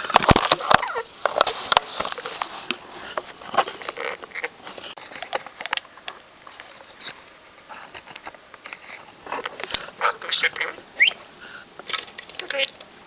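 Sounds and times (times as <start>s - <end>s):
budgerigar chattering and warbling: 9.8s - 11.3s.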